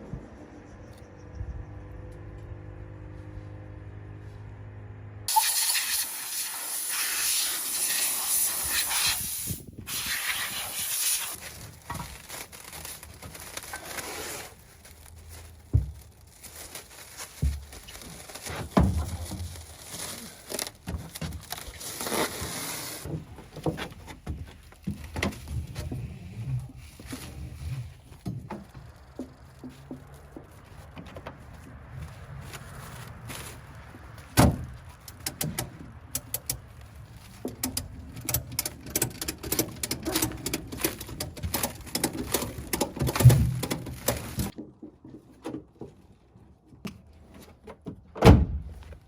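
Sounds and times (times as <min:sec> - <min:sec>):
spray hissing: 0:05.3 - 0:11.4.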